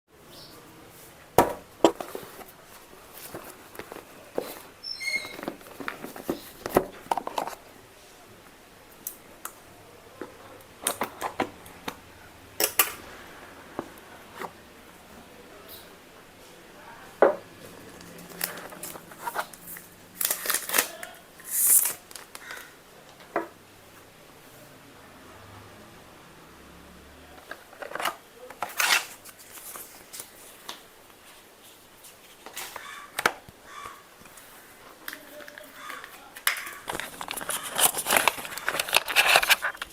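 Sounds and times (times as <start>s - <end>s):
cardboard and plastic packaging handled: 0.9s - 7.8s, 17.6s - 23.6s, 27.3s - 39.9s.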